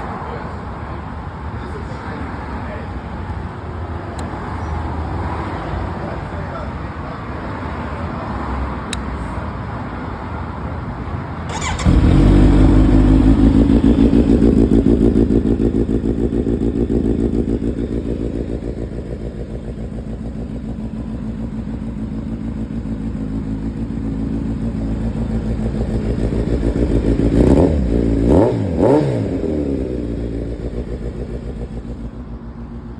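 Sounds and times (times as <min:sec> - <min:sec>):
motorcycle engine idling: 0:11.5 - 0:28.3, 0:29.0 - 0:32.9
motorcycle throttle blips: 0:11.5 - 0:32.8.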